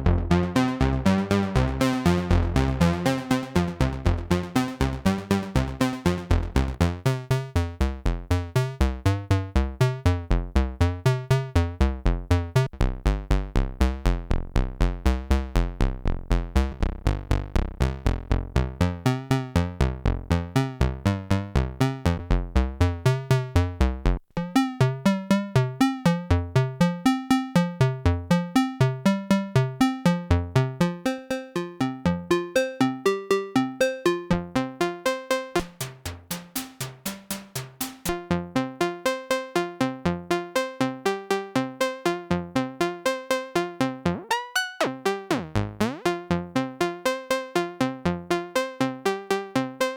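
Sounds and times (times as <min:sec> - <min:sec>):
synthesizer step-sequenced line: 0:00.0 - 0:06.8, 0:35.6 - 0:38.2.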